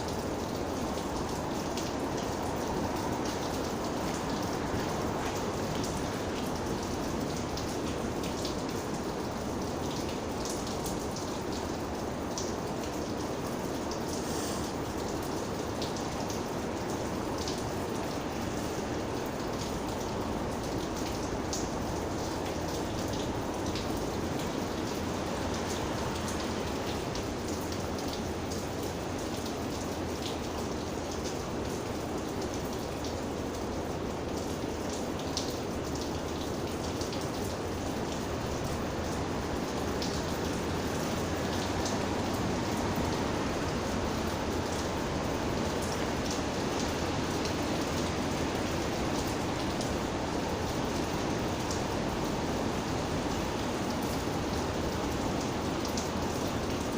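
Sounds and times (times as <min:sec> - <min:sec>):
rain hissing: 0:13.3 - 0:22.1.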